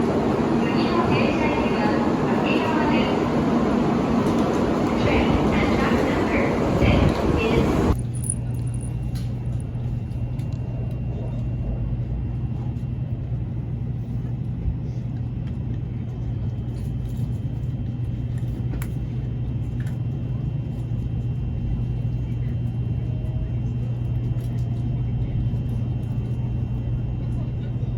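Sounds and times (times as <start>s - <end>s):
train hum and rumble: 0.0s - 27.9s.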